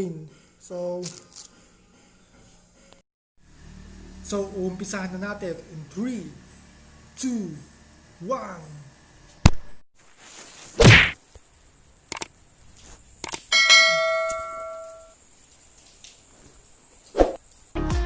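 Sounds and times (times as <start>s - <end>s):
thuds: 10.8s - 11.2s
metallic ding ringing: 13.5s - 15.1s.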